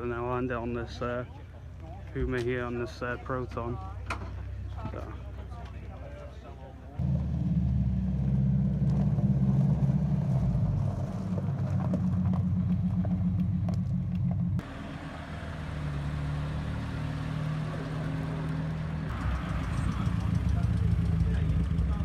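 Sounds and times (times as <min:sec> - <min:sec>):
car engine running: 0:07.0 - 0:22.0.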